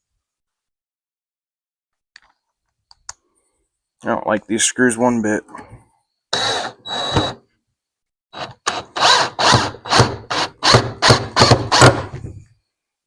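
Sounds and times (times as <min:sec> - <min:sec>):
power drill driving screws: 0:06.3 - 0:07.4, 0:08.4 - 0:12.1.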